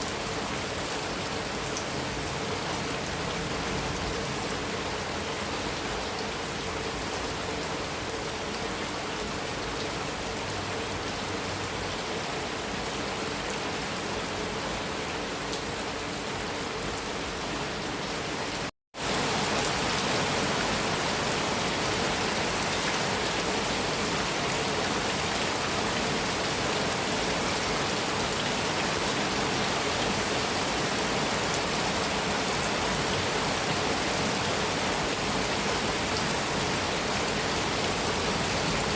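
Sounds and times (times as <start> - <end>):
heavy rain on a metal roof: 0.0 - 38.9.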